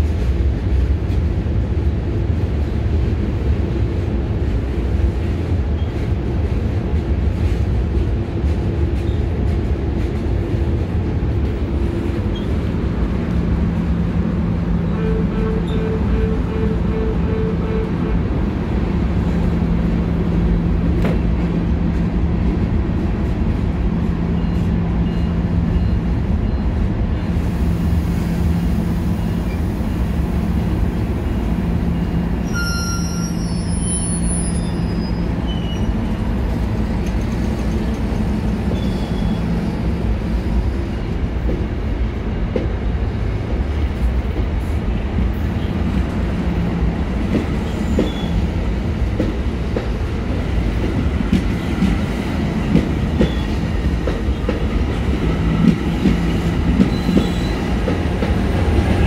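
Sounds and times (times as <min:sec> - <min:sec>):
train low hum: 0:00.0 - 0:59.0
high squeals: 0:32.4 - 0:36.0.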